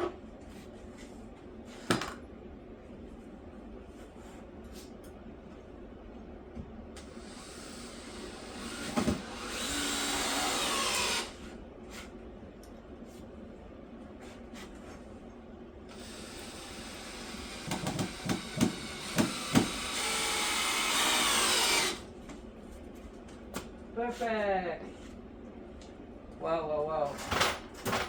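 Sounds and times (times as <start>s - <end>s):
power drill running: 7.0s - 11.5s, 15.9s - 22.1s.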